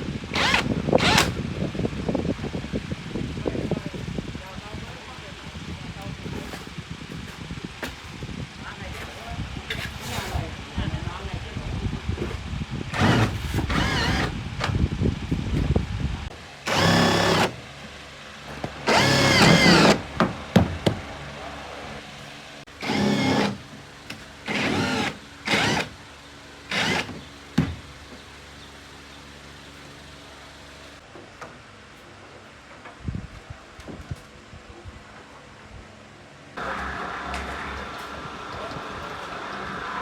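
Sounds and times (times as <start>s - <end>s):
electric drill whining: 0.3s - 1.4s, 12.9s - 14.4s, 16.7s - 17.6s, 18.9s - 20.1s, 22.8s - 23.6s, 24.5s - 26.0s, 26.7s - 27.2s.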